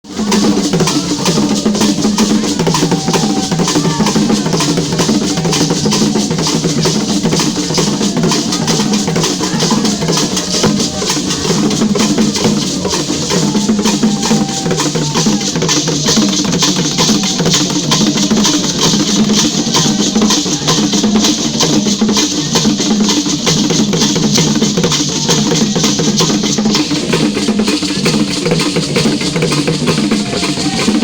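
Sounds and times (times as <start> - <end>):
fast drumming music: 0.1 - 31.0.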